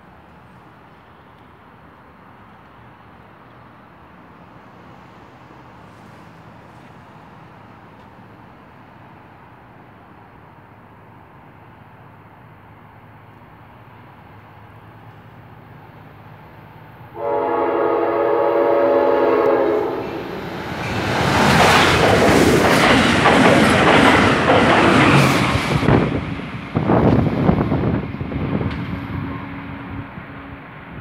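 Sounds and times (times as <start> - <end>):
train wheels rushing on rails: 14.0 - 31.0
train horn blast: 17.1 - 20.4
wheels clacking over rail joints: 20.3 - 27.3.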